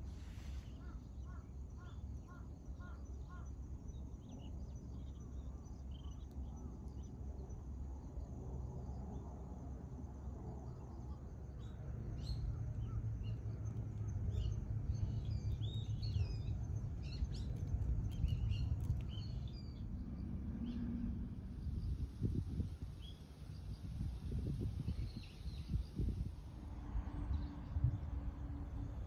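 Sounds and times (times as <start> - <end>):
low outdoor rumble: 11.6 - 29.0.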